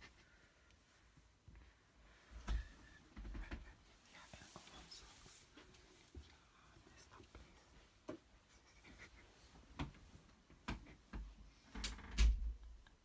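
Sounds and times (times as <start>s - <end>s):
small clicks taps and rustles: 9.1s - 13.0s.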